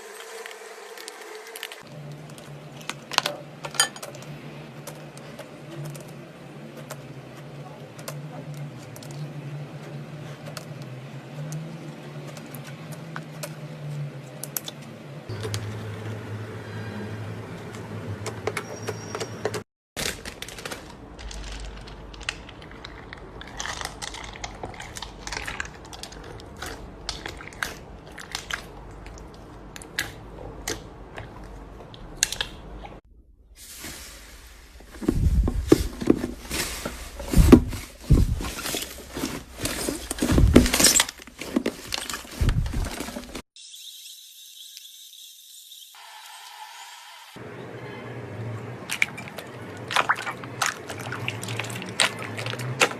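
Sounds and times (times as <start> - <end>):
slime squishing and crackling: 20.0 - 31.5, 49.8 - 52.9.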